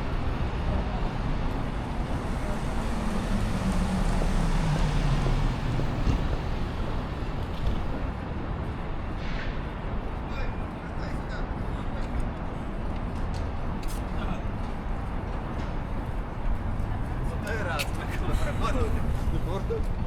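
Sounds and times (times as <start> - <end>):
road noise: 0.0 - 20.0
motor vehicle passing: 1.6 - 8.2.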